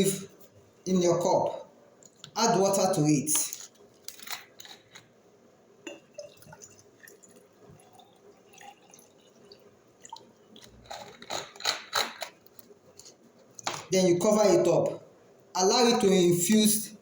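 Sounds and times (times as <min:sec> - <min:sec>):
water dripping into a glass cup: 0:05.8 - 0:11.0.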